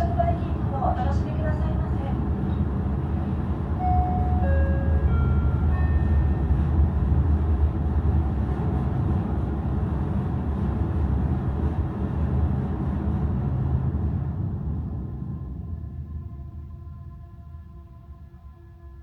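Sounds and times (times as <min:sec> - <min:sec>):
ship engine rumble: 0:00.0 - 0:15.7
pa chime notes: 0:03.8 - 0:06.4.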